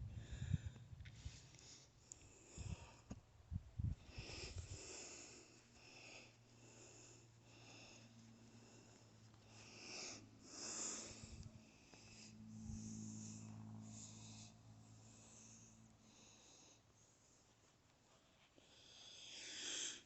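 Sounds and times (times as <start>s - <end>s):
person breathing: 0.0s - 3.2s, 3.8s - 20.0s.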